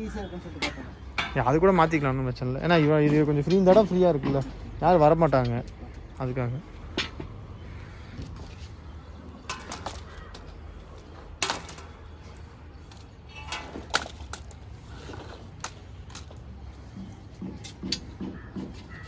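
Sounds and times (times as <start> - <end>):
metal knocks and clanks: 0.6 - 1.8, 16.8 - 19.0.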